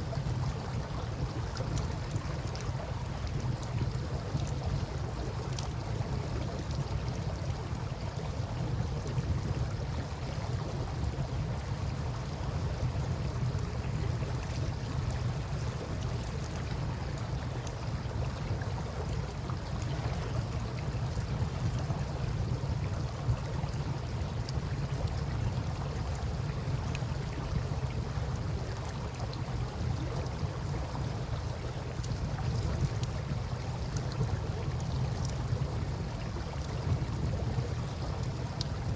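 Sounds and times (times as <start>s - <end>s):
constant low rumble: 0.0s - 38.9s
flowing river water: 0.0s - 38.9s
campfire crackling and popping: 1.4s - 8.2s, 31.3s - 38.9s.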